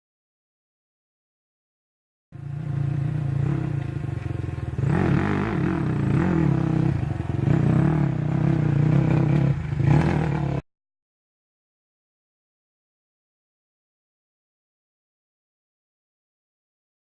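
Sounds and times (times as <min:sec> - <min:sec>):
motorcycle engine revving: 0:02.4 - 0:10.7.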